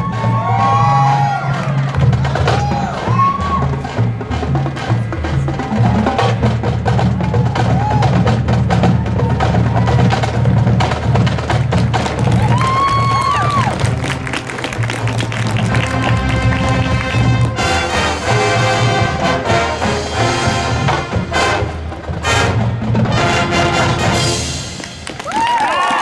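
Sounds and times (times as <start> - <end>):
marching band playing swing music: 0.0 - 25.3
percussion beat: 0.0 - 26.0
low brass bass line: 13.5 - 24.8
horns holding a long chord: 13.8 - 24.9.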